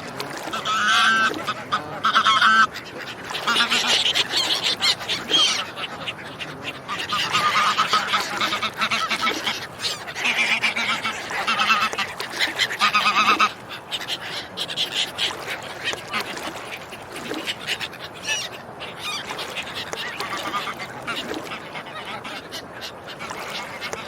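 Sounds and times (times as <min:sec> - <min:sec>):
ducks quacking and honking: 0:00.0 - 0:24.0.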